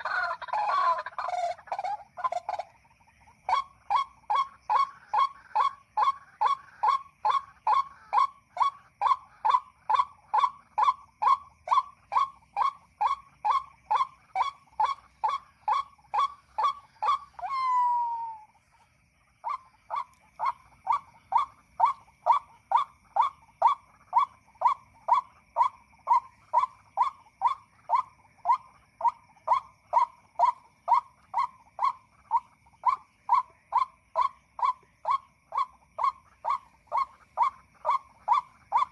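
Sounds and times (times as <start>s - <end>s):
bird call notes: 10.8s - 18.5s.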